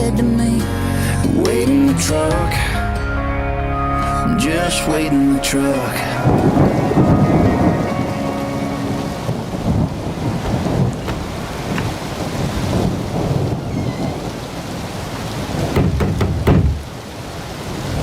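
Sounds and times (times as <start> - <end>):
steady rain: 4.0 - 18.0
low rolling thunder: 4.2 - 16.9
crackling thunderclap: 5.7 - 16.9.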